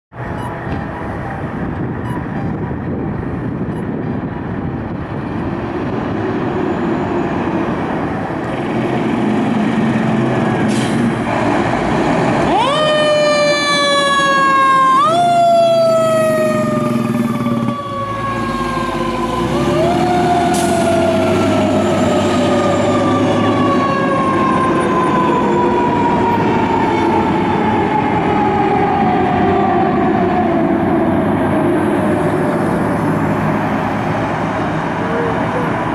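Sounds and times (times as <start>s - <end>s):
engine and traffic noise: 0.1s - 35.9s
fire engine siren: 0.1s - 35.9s.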